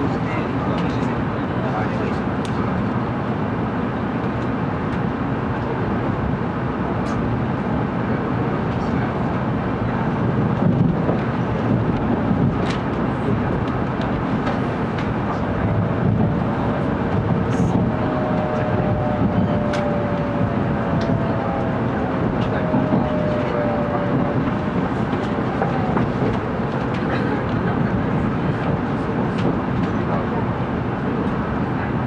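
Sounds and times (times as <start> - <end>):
train running rumble: 0.0 - 32.0
faint whine falling in pitch: 15.3 - 26.3.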